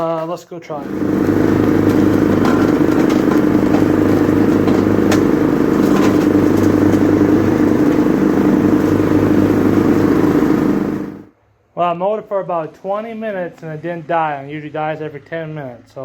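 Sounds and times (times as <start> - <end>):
lawn mower engine running: 0.8 - 11.3.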